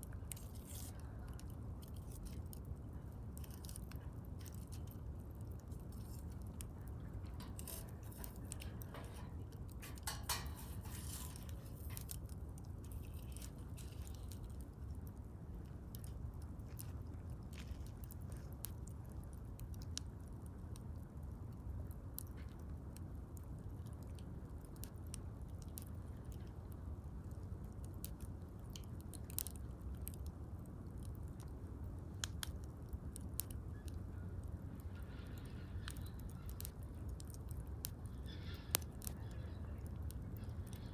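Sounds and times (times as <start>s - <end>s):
wood fire crackling and popping: 0.0s - 40.9s
low steady rumble: 4.0s - 16.4s.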